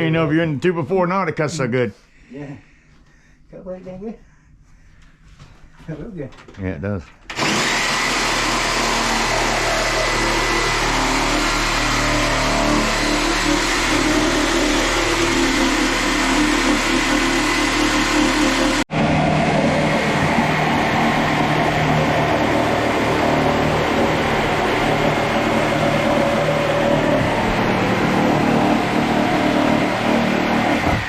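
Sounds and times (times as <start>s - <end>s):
power saw cutting wood: 7.3s - 31.0s.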